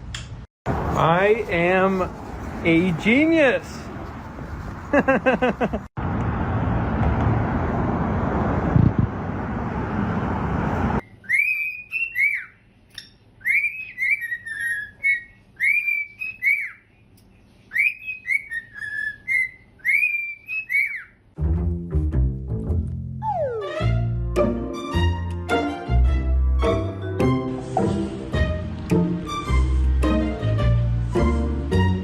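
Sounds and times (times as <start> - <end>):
whistled melody: 11.0 - 12.6, 13.4 - 16.8, 17.7 - 21.1, 23.2 - 32.0.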